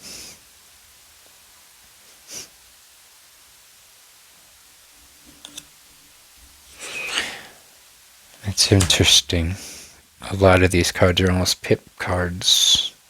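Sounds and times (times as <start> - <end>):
card sliding across deck: 6.8 - 7.4, 8.6 - 9.2
cards clicking: 8.6 - 9.3.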